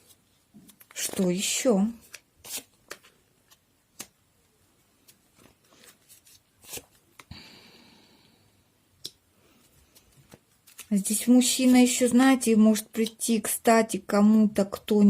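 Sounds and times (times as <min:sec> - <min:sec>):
cards sliding rustle: 0:00.0 - 0:04.2, 0:05.0 - 0:07.3, 0:09.5 - 0:12.1.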